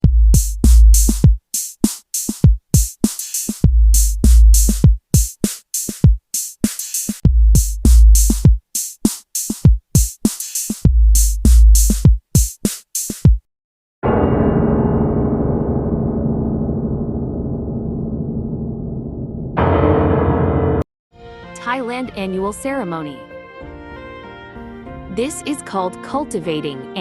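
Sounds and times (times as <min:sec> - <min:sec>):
electronic drum machine beat: 0:00.0 - 0:01.5, 0:02.1 - 0:13.5.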